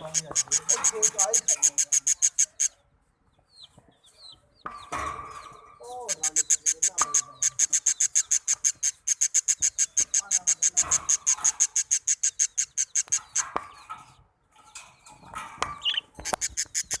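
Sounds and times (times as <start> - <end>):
young birds chirping: 0.0 - 17.0
sharp clicks: 6.0 - 13.7.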